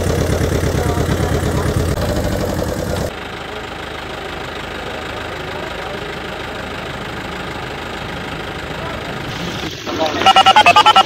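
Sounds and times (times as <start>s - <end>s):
engine idling with fast knock: 0.0s - 10.3s.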